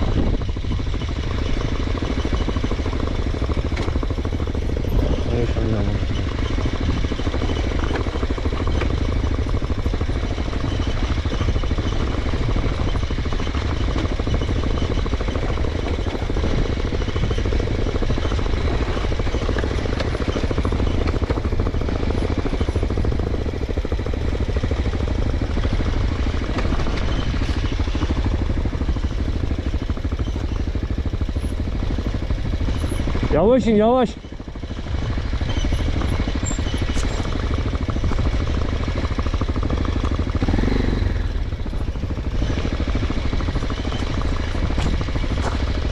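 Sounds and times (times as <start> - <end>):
motorcycle engine chugging: 0.0 - 45.9.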